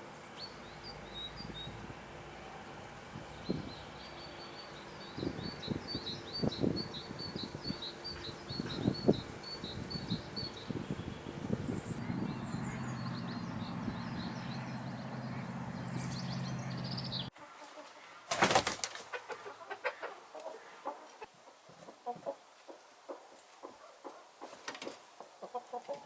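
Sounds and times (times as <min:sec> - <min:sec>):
small birds chirping: 0:00.0 - 0:02.2, 0:02.8 - 0:17.4
steady low hum: 0:00.1 - 0:17.3
chickens clucking: 0:05.2 - 0:26.0
chicken squawk: 0:19.1 - 0:21.3.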